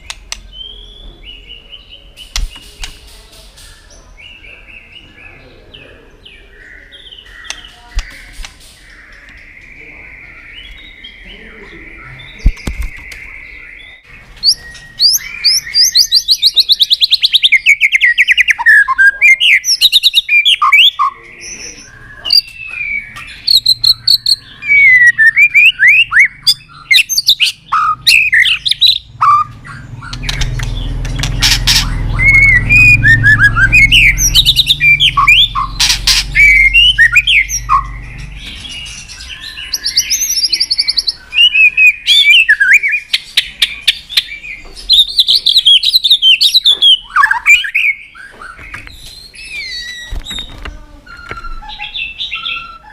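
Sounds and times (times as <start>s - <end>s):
sharp clicks: 0.0s - 0.5s, 30.1s - 31.9s
bird singing whistles and trills: 0.0s - 2.9s, 6.3s - 52.9s
low rumble: 29.6s - 39.3s.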